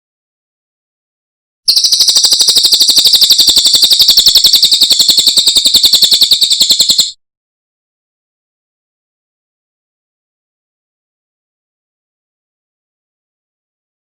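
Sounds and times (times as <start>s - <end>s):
songbird rapid trill: 1.7s - 7.2s.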